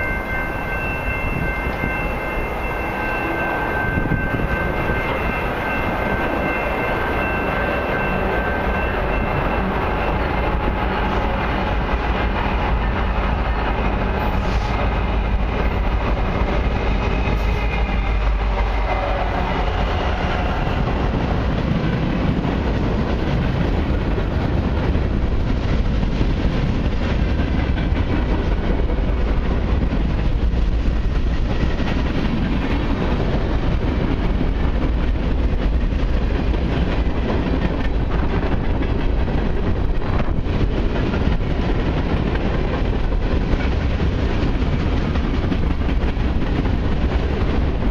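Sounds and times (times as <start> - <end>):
train wheels rumbling on rail: 0.0 - 47.9
wheels clicking over rail joints: 19.7 - 47.9.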